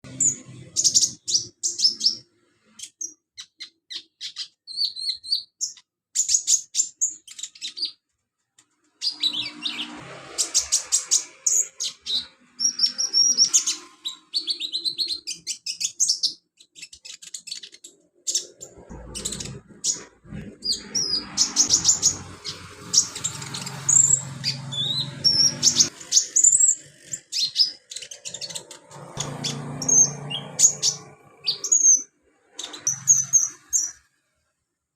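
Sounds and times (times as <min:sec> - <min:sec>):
sunbird twittering song: 0:00.1 - 0:08.0, 0:09.0 - 0:34.1.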